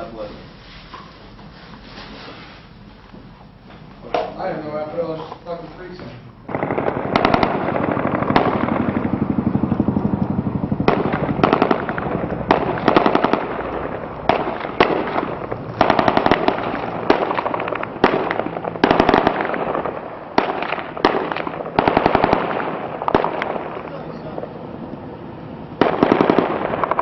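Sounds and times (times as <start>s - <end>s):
automatic machine-gun fire: 6.5s - 9.7s, 10.4s - 24.4s, 25.8s - 27.0s.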